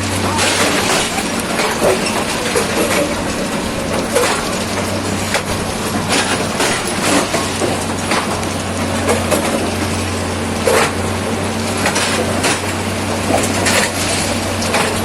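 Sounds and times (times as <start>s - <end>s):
low engine hum: 0.0s - 15.0s
machinery crunching and clattering: 0.0s - 15.0s.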